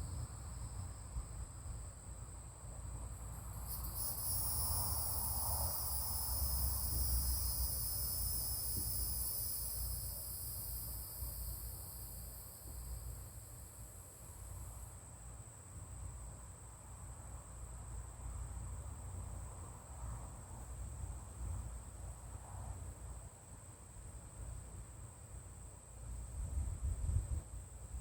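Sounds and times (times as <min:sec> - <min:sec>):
insects trilling: 0:00.0 - 0:14.9.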